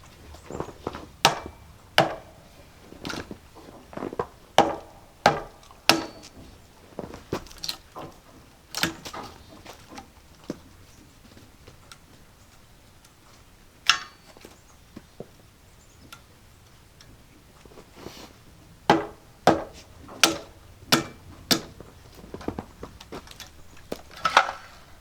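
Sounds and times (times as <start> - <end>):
hammer striking wood: 1.2 - 2.4, 4.6 - 6.4, 18.9 - 21.8.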